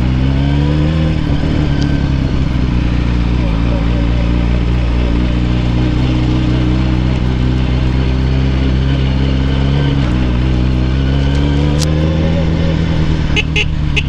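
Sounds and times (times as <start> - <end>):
motorcycle engine running steadily: 0.0 - 14.0.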